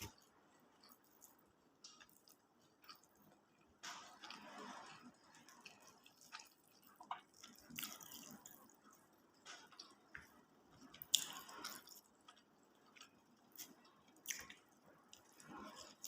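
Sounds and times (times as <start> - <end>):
wet chewing and mouth clicks: 0.0 - 16.0.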